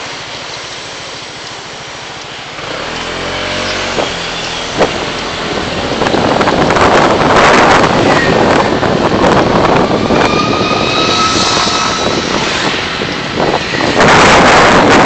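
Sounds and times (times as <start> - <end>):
road and wind noise: 0.0 - 15.0
rush of noise: 0.0 - 15.0.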